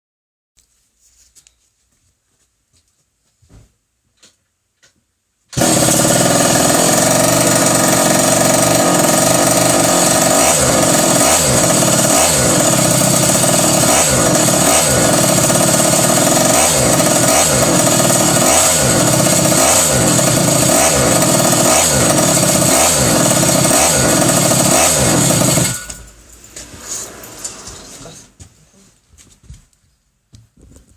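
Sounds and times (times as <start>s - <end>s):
small two-stroke engine running: 5.6s - 26.1s.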